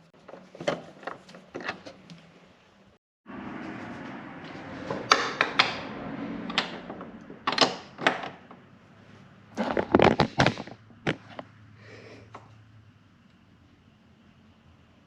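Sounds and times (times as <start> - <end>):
hand tools clicking and knocking: 4.9 - 5.9, 6.5 - 8.6, 9.6 - 11.5.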